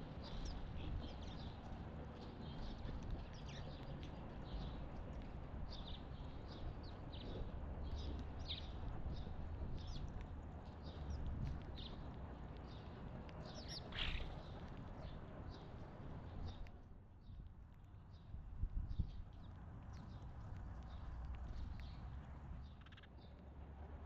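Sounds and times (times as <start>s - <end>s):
songbirds chirping: 0.1s - 17.5s, 18.9s - 23.4s.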